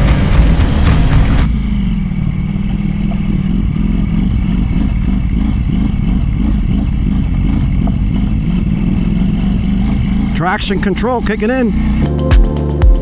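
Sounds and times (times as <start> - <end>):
motorcycle engine rumble: 0.0 - 11.0
road noise: 0.0 - 12.8.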